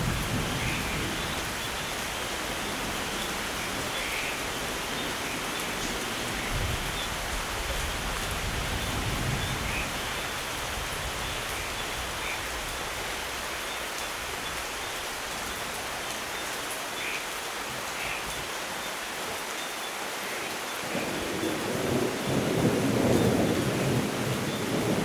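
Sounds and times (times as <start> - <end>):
low rumble of thunder: 0.0 - 2.2, 6.4 - 12.1, 20.9 - 25.0
steady rainfall: 0.0 - 25.0.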